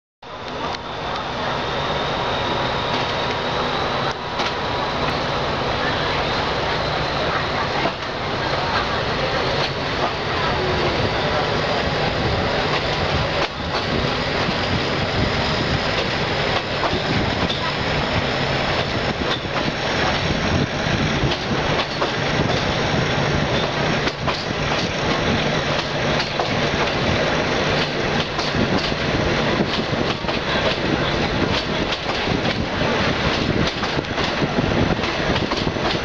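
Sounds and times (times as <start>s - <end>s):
train rumble: 0.2s - 36.0s
wheels clacking over rail joints: 21.2s - 22.8s, 23.5s - 36.0s.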